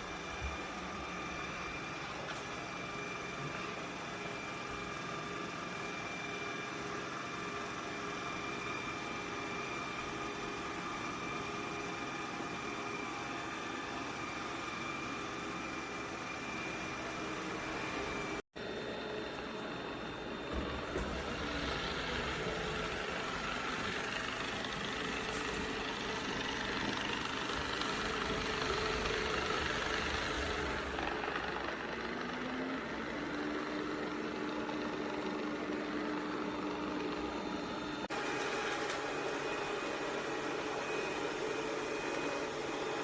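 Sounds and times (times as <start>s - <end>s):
robot vacuum motor whirring: 19.4s - 43.0s.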